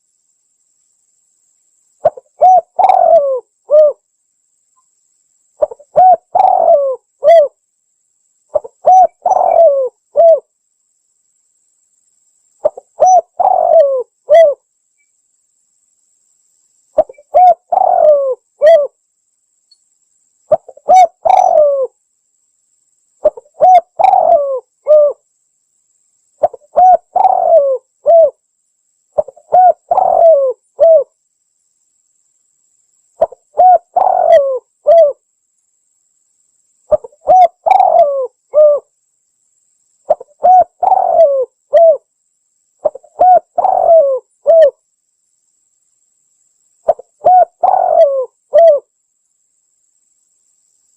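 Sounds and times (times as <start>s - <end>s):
dove cooing: 2.0s - 4.0s, 5.6s - 7.6s, 8.5s - 10.5s, 12.6s - 14.6s, 17.0s - 19.0s, 20.5s - 21.9s, 23.2s - 25.2s, 26.4s - 28.4s, 29.2s - 31.1s, 33.2s - 35.2s, 36.9s - 38.9s, 40.1s - 42.1s, 42.8s - 44.8s, 46.9s - 48.9s.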